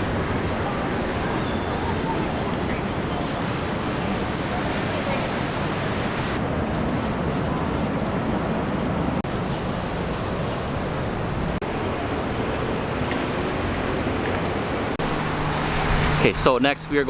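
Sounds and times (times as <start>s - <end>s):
waterfall roaring: 0.0s - 6.4s, 11.7s - 17.0s.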